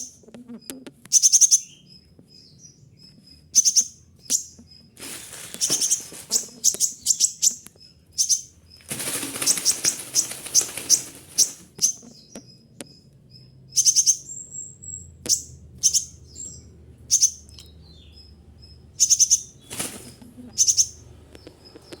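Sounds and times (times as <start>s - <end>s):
bird chirping: 0.0s - 22.0s
wings flapping: 5.0s - 7.6s, 8.2s - 12.1s, 19.1s - 22.0s.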